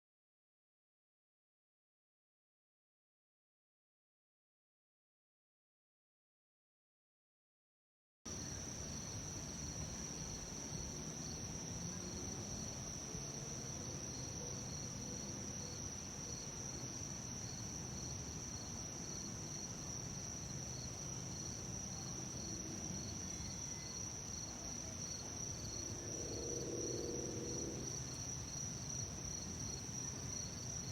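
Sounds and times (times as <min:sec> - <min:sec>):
insects trilling: 0:20.3 - 0:30.9.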